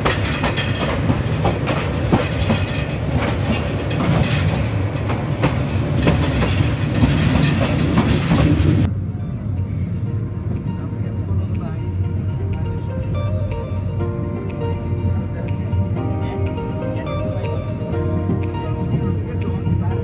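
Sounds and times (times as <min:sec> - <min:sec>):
wheels clicking over rail joints: 0:00.0 - 0:08.9
passenger train rumbling: 0:00.0 - 0:20.0.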